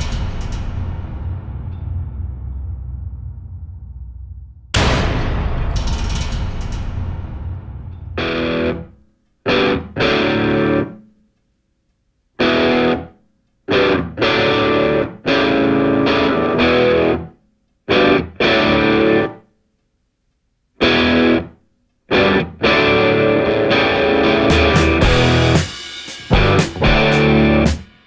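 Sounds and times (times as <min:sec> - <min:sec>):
distorted electric guitar chords: 0:22.3 - 0:25.7, 0:26.3 - 0:27.7.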